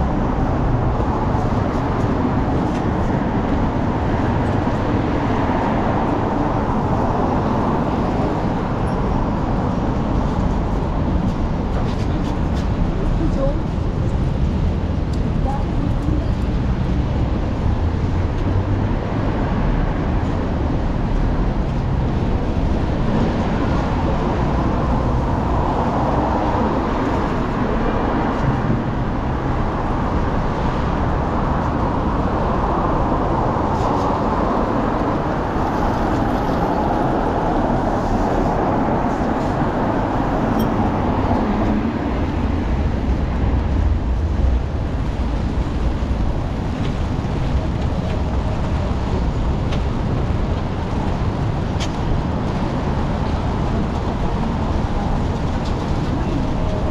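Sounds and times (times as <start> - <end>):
cars driving past: 16.2 - 56.9.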